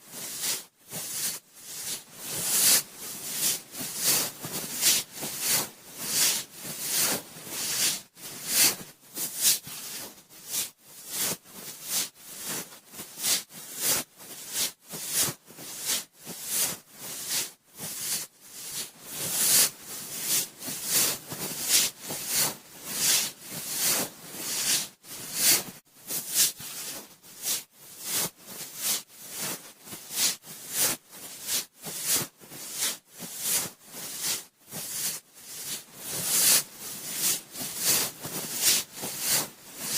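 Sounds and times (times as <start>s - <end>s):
cotton swab rubbing in ear: 0.2s - 39.9s.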